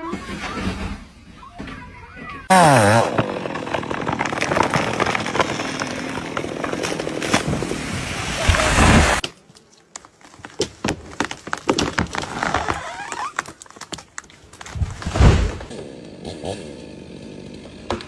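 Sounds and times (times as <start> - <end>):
tree falling with cracking wood: 2.5 - 9.3, 10.0 - 16.2
wood snaps and knocks: 8.5 - 15.7.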